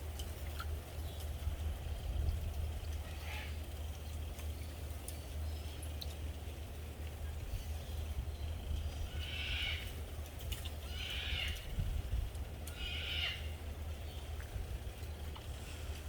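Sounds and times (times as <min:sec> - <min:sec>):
steady low rumble: 0:00.0 - 0:16.0
harsh animal calls: 0:12.7 - 0:13.6.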